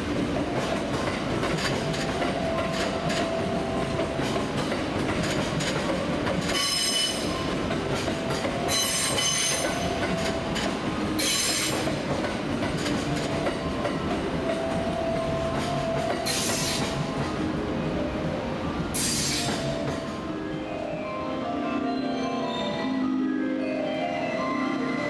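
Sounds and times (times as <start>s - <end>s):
train running rumble: 0.0s - 21.0s
train wheels squealing on rails: 5.2s - 14.2s, 15.6s - 17.4s, 18.9s - 20.2s, 21.7s - 23.2s.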